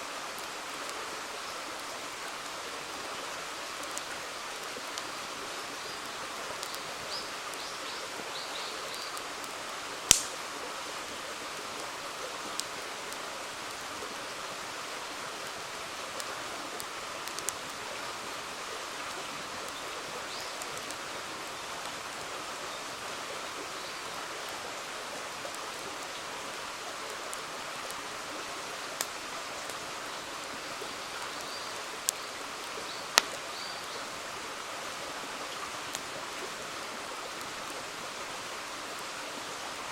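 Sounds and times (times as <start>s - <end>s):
river flowing: 0.0s - 39.9s
campfire pops and cracks: 10.0s - 10.4s, 16.2s - 17.8s, 20.6s - 21.0s, 29.0s - 29.8s, 33.1s - 33.4s.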